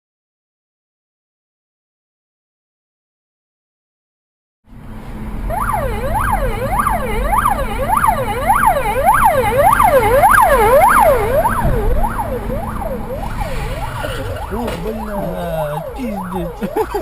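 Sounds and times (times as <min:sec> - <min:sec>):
engine and road rumble: 0:04.7 - 0:17.0
emergency siren yelping: 0:05.5 - 0:17.0.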